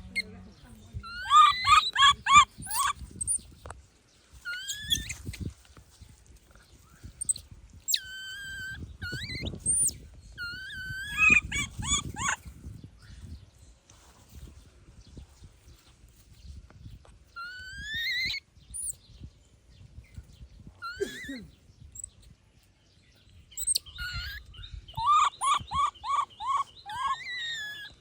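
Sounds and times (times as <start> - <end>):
baby monkey squealing: 1.0 - 3.4, 4.5 - 5.4, 7.2 - 12.4, 17.4 - 19.0, 20.8 - 21.4, 23.6 - 28.0.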